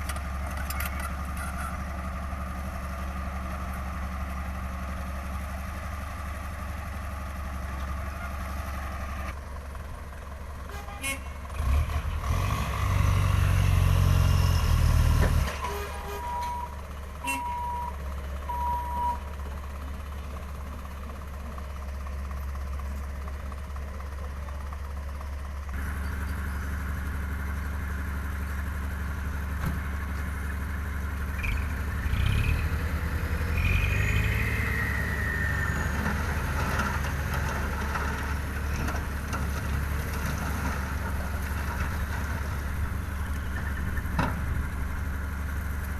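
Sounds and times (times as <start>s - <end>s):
dump truck engine revving: 11.1s - 16.8s, 25.7s - 45.9s
reversing alarm beeps: 15.6s - 19.2s.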